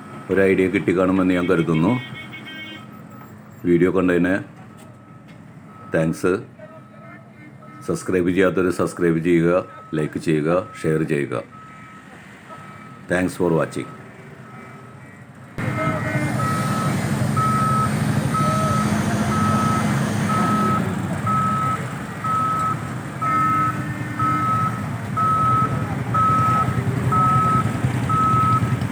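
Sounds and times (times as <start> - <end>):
reversing alarm beeping: 4.7 - 6.2, 6.8 - 8.0, 11.5 - 13.1, 13.8 - 28.9
engine running: 15.6 - 28.9.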